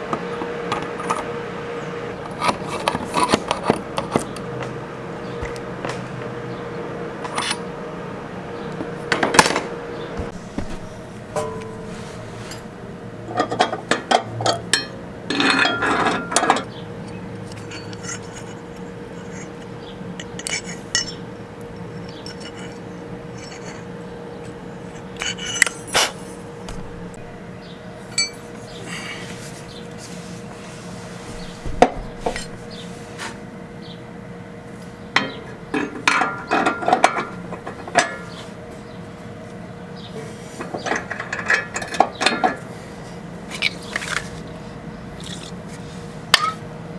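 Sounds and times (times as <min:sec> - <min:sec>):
faint steady hum: 0:00.0 - 0:46.9
metal tools clinking on steel: 0:07.2 - 0:07.8, 0:10.3 - 0:16.7, 0:17.5 - 0:21.3, 0:25.0 - 0:27.4, 0:28.1 - 0:28.8, 0:31.3 - 0:32.8, 0:40.6 - 0:42.6, 0:46.3 - 0:46.6.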